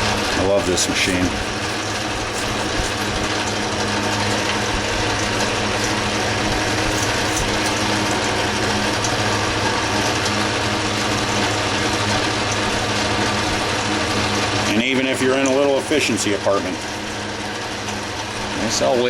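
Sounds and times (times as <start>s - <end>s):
metal lathe gears whirring: 0.0s - 3.6s, 4.6s - 19.0s.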